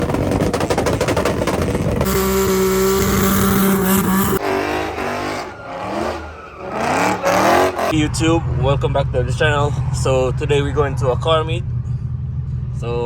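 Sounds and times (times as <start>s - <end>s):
exhaust crackling pops: 0.0s - 3.5s
car engine revving: 0.1s - 13.0s.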